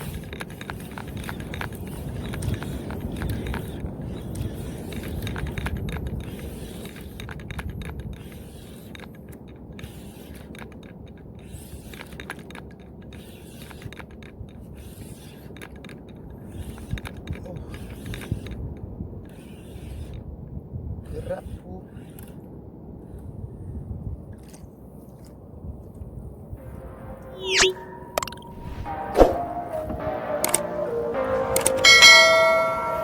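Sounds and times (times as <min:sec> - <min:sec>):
fishing reel gears whirring: 0:00.0 - 0:20.2, 0:21.1 - 0:23.3
low rumble: 0:26.6 - 0:33.0.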